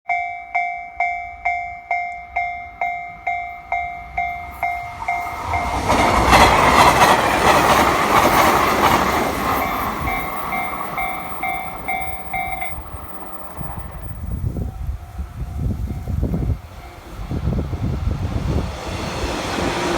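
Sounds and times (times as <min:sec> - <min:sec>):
train passing: 0:00.5 - 0:19.9
train wheel clicks: 0:04.2 - 0:14.6
level crossing bell dinging: 0:09.7 - 0:13.5.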